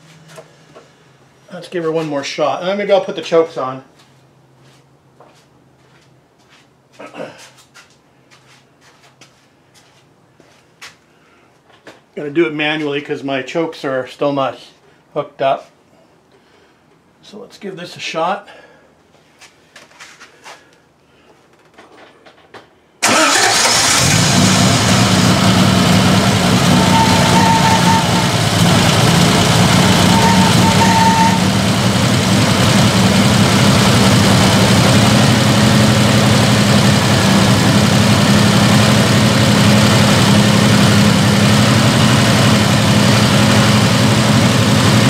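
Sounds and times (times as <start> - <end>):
car engine starting and running: 23.0 - 45.0.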